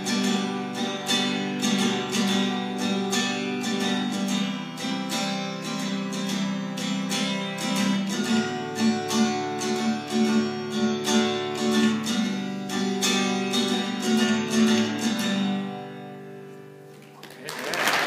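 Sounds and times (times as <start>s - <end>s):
acoustic guitar strumming: 0.0s - 17.2s.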